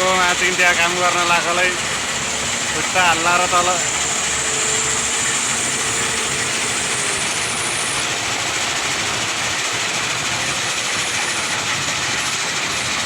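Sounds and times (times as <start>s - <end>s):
faint whine: 0.0s - 8.8s
backhoe engine under load: 0.0s - 13.0s.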